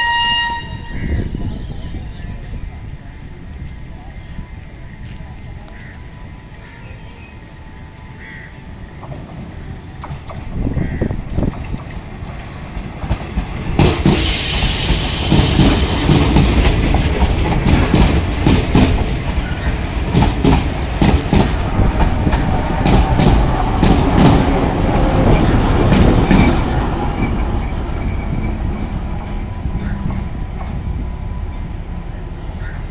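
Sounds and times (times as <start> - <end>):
train wheels clattering over rail joints: 11.3 - 30.8
high wheel squeals: 26.3 - 28.9.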